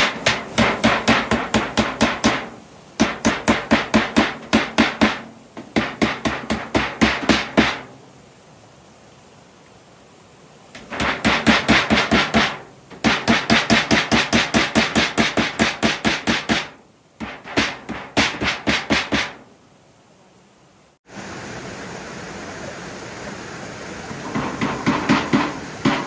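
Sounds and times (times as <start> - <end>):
rapid chopping strokes: 0.0 - 7.9, 10.8 - 19.4, 24.3 - 26.0.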